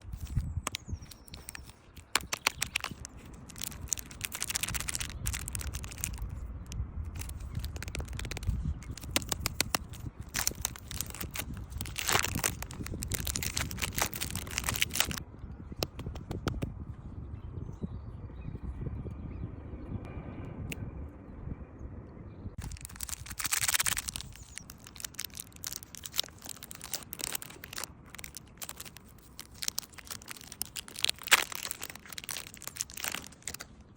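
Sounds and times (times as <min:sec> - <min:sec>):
wrapper crinkling: 0:00.0 - 0:15.2, 0:22.6 - 0:33.8
faint low rumble: 0:00.0 - 0:33.9.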